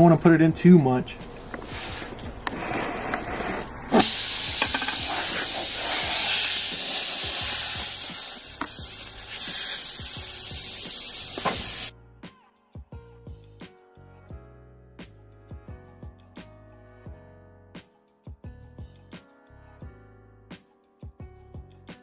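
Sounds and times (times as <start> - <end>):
air hissing from tire: 1.6 - 11.9.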